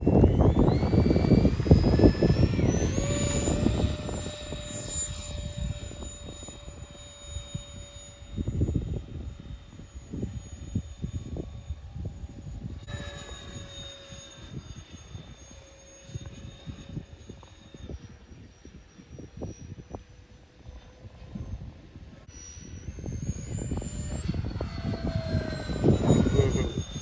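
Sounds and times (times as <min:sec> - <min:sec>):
wind buffeting microphone: 0:00.0 - 0:15.4, 0:21.1 - 0:27.0
electric ducted fans whining: 0:00.0 - 0:27.0.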